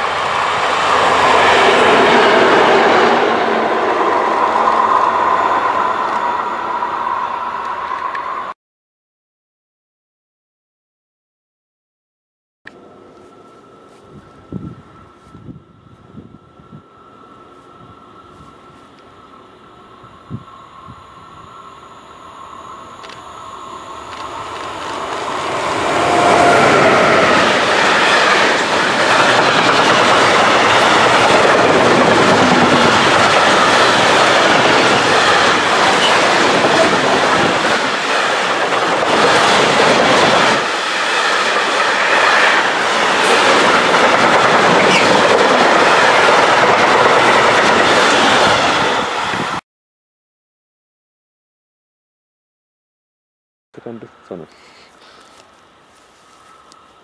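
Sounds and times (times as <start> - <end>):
freight train wheels rattling: 23.0 - 49.5.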